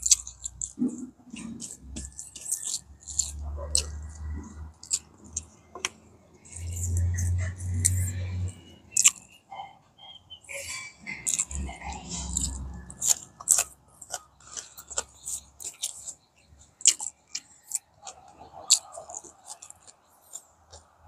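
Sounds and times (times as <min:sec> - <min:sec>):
wet mouth clicks: 0:00.0 - 0:09.3, 0:11.2 - 0:16.2
person chewing food: 0:00.0 - 0:09.6, 0:11.0 - 0:21.0.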